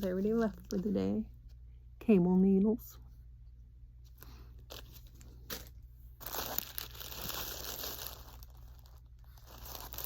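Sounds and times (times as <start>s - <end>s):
plastic packaging crinkling: 4.7s - 10.0s.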